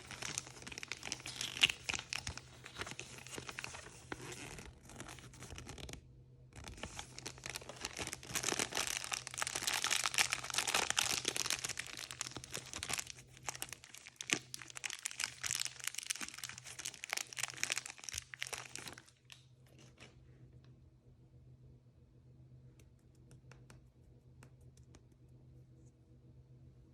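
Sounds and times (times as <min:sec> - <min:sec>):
wrapper crinkling and tearing: 0:00.0 - 0:06.0, 0:06.6 - 0:20.1.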